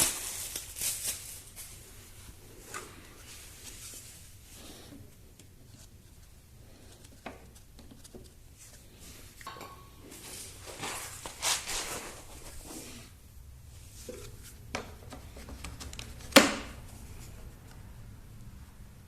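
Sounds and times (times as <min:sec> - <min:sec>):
soft rustling of plastic parts: 0:00.0 - 0:18.2.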